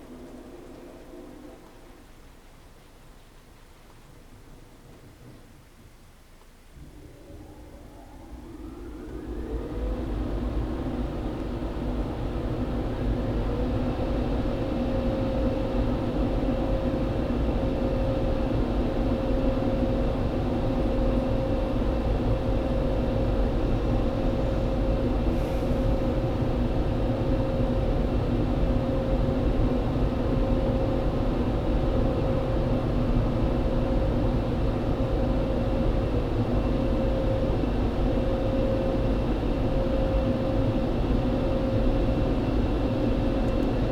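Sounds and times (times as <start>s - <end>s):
car wash machine whining drone: 7.1s - 12.4s.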